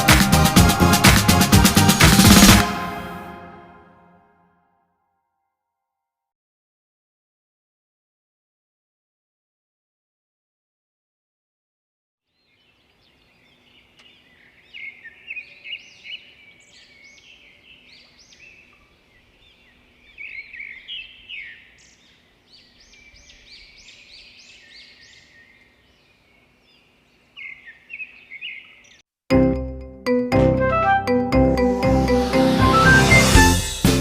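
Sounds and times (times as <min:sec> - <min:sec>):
birds chirping: 0:12.4 - 0:29.0.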